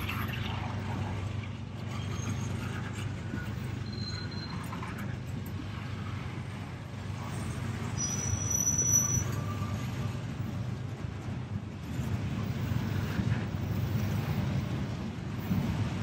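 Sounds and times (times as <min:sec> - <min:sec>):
train wheels rumbling on rail: 0:00.0 - 0:16.0
high-pitched wheel squeal: 0:01.9 - 0:06.1, 0:07.2 - 0:10.6.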